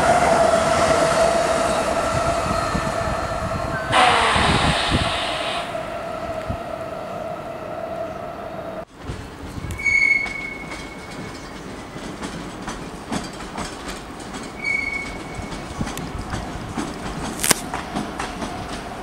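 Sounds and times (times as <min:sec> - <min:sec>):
high-pitched wheel squeals: 0:01.2 - 0:08.8, 0:09.7 - 0:11.5, 0:14.6 - 0:15.6
sharp clank: 0:03.9 - 0:05.8
train wagons clicking over rail joints: 0:08.9 - 0:19.0.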